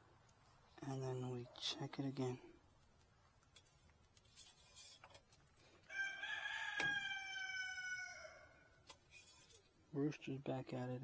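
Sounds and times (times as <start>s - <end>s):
rooster crowing: 5.9s - 8.8s.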